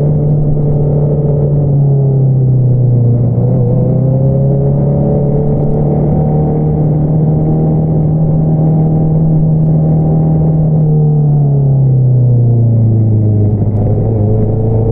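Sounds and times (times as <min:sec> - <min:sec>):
motorcycle engine cruising: 0:00.0 - 0:14.9.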